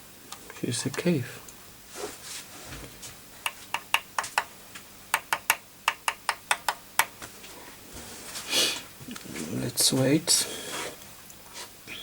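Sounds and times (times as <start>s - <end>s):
solder pot clicking: 3.4s - 4.5s, 5.1s - 7.1s.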